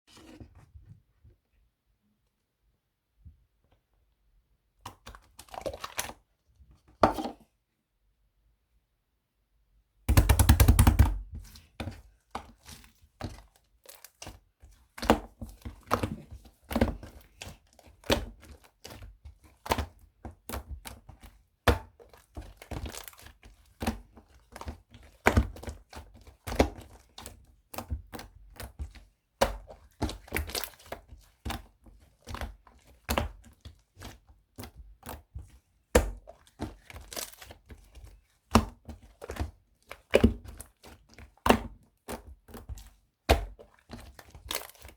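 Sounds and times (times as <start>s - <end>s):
slime squelching and popping: 29.4s - 35.2s, 35.9s - 37.8s, 38.5s - 44.9s.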